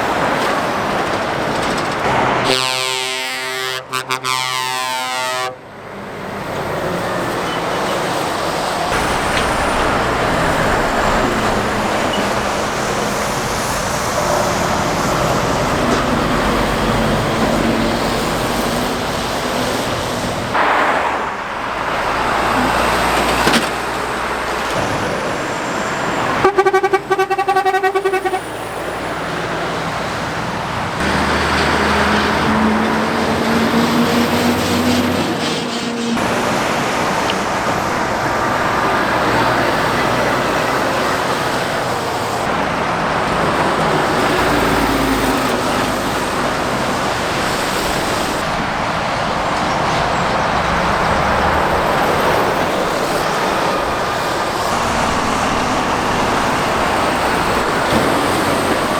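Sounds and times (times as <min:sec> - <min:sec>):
road traffic passing: 0:00.0 - 0:58.9
stuttering vehicle horn: 0:02.3 - 0:05.7, 0:26.3 - 0:28.8.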